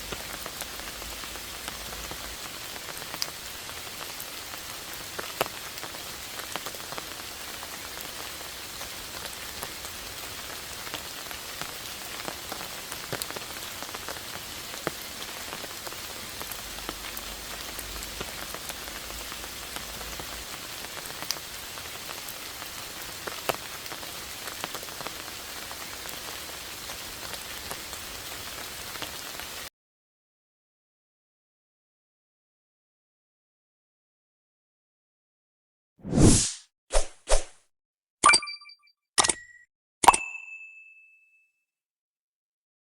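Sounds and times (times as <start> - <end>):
rain hissing: 0.0 - 29.7.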